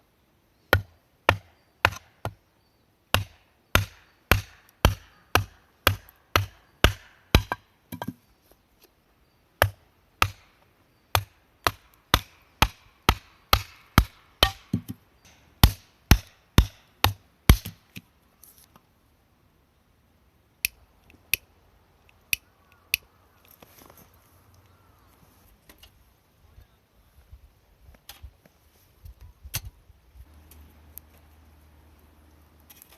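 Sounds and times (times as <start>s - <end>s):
hatchet chopping wood: 0.7s - 2.4s, 3.1s - 8.2s, 9.6s - 15.0s, 15.6s - 18.0s.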